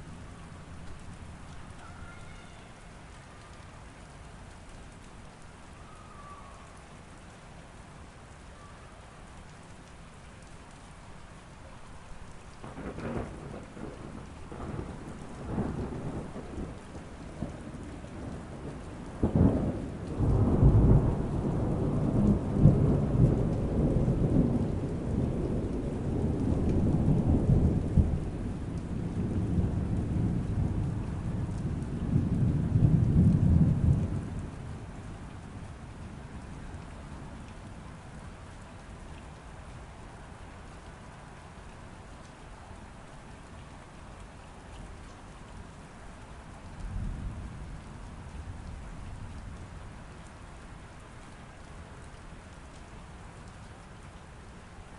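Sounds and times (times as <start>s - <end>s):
steady rain: 0.0s - 54.9s
thunder rumbling: 12.6s - 37.1s.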